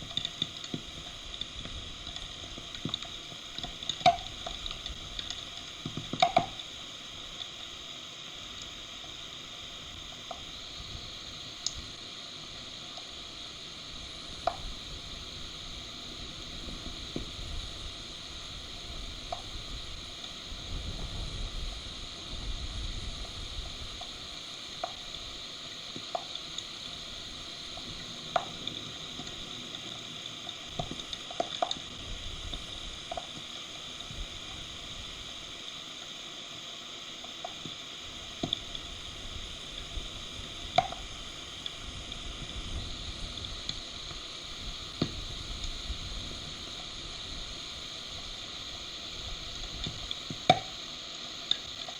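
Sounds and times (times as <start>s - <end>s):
sharp drips and taps: 2.1s - 6.7s, 14.4s - 14.7s, 24.8s - 25.0s, 38.4s - 38.7s, 40.7s - 41.1s, 49.8s - 50.8s
heavy rain hissing: 8.8s - 51.9s.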